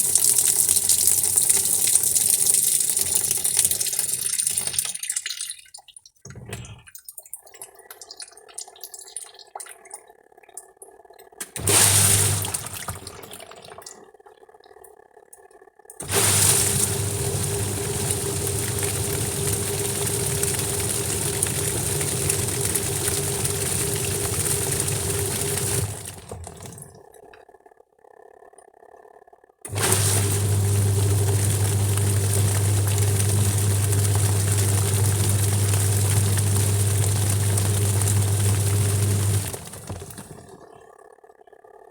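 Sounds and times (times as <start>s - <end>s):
washing machine running: 0.0s - 4.9s, 11.4s - 13.9s, 16.0s - 27.1s, 29.7s - 40.8s.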